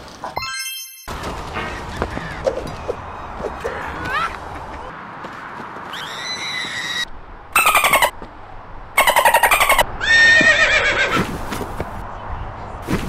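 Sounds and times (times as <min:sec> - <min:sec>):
horse whinnying: 0:09.0 - 0:11.2.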